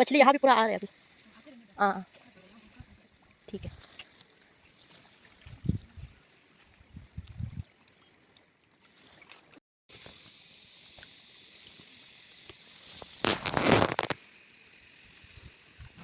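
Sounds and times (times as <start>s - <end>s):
water sloshing and splashing: 8.6s - 10.2s.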